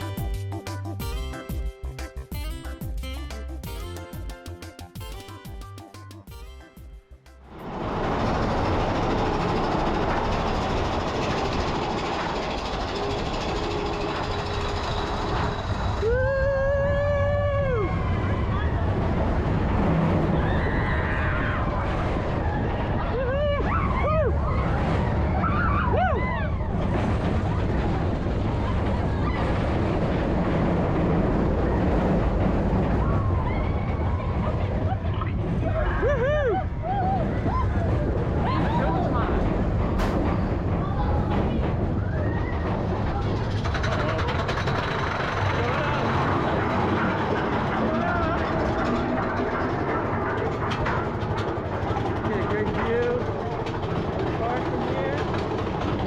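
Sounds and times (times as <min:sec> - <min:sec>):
vehicle running noise: 0:07.1 - 0:16.0
roller coaster rumbling on track: 0:07.4 - 0:56.0.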